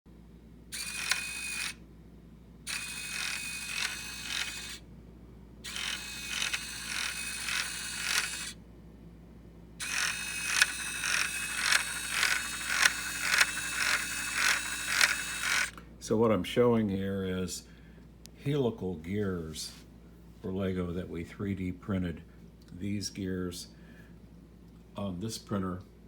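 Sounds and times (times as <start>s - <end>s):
small electric motor whine: 0.7s - 1.8s, 2.7s - 4.8s, 5.6s - 8.6s, 9.8s - 15.8s
gear teeth clicking: 5.7s - 8.5s, 9.8s - 15.7s.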